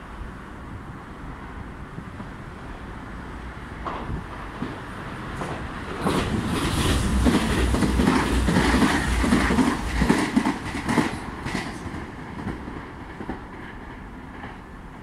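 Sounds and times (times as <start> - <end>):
wheels clacking over rail joints: 3.8 - 14.6.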